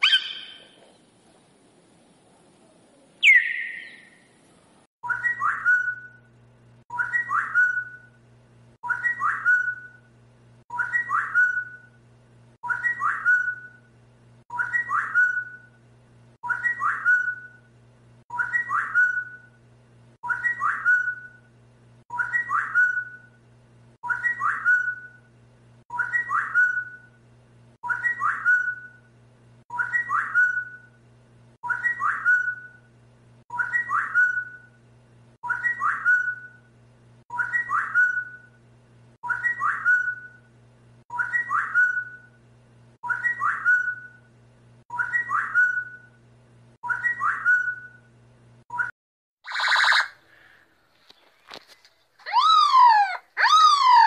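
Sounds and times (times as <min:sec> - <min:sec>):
steady low hum: 0:00.0 - 0:26.1
whistled phrase: 0:52.2 - 0:54.0.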